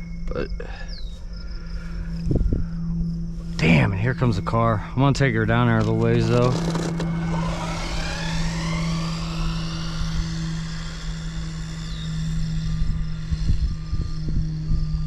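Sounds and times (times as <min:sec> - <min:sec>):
steady low hum: 0:00.0 - 0:15.0
wind thumping on microphone: 0:02.2 - 0:02.9
rc car electric motor whining: 0:04.5 - 0:15.0.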